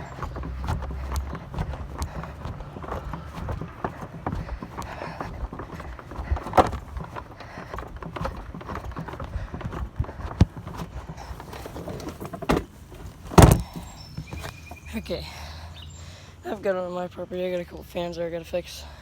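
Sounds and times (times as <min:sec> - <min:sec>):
thumps and knocks of appliance: 0:00.0 - 0:14.6
footsteps walking: 0:00.0 - 0:14.8.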